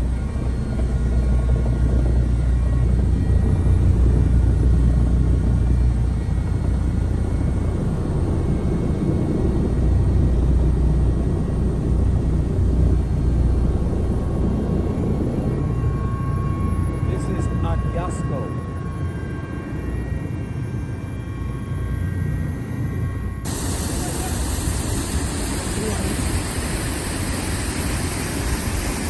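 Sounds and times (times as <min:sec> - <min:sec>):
helicopter rumbling overhead: 0:00.0 - 0:29.0.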